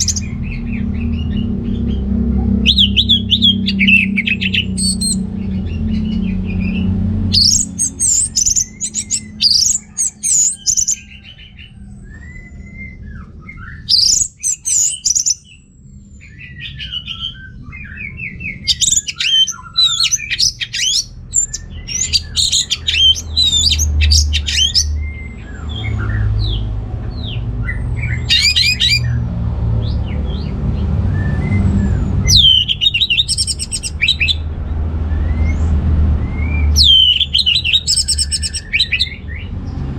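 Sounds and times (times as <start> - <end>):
thrush singing: 0.0 - 11.6, 18.0 - 29.2, 29.9 - 34.6, 35.3 - 39.6
low rumble: 0.0 - 37.2.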